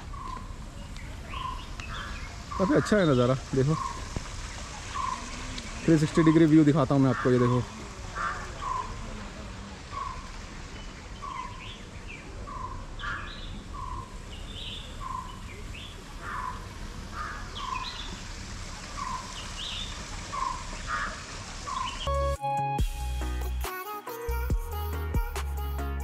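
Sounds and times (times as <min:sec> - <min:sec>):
outdoor hiss: 0:00.0 - 0:22.1
background music: 0:22.1 - 0:26.0.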